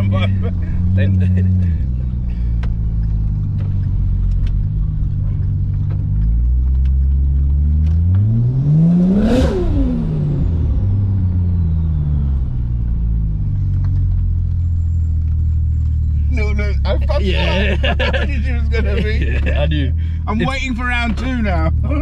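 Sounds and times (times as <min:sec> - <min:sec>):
car engine revving hard: 0:07.1 - 0:12.4.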